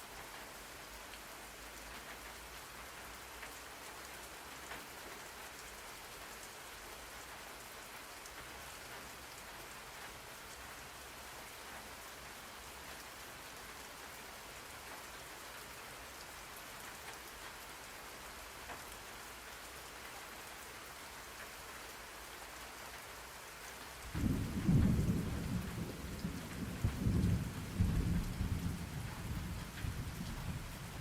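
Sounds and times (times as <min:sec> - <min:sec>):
rain hiss: 0:00.0 - 0:31.0
rolling thunder: 0:24.1 - 0:31.0.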